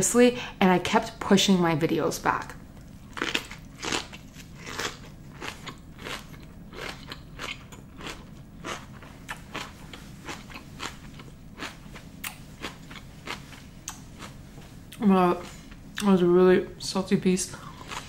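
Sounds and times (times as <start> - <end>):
person chewing crunchy food: 2.8 - 15.8, 17.6 - 18.0.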